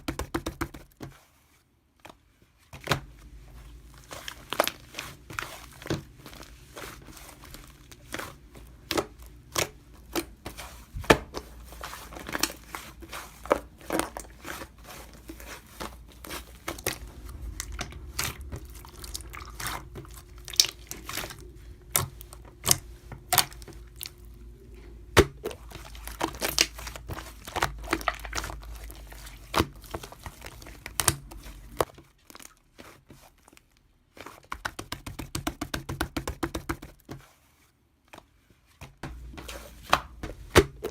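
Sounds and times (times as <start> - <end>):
low steady hum: 2.1 - 32.3, 39.0 - 40.9
crinkling and tearing: 3.7 - 34.6.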